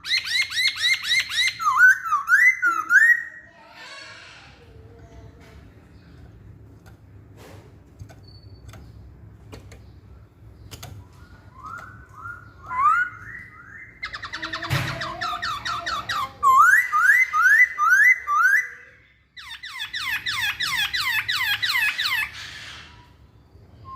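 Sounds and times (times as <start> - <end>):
bird singing whistled notes: 11.1 - 18.9, 23.5 - 23.9.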